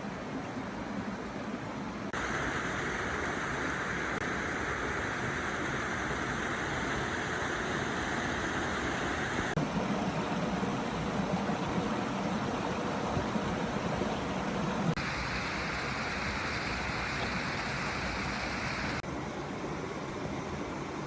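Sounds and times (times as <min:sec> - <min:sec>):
stream water flowing: 0:00.0 - 0:21.0.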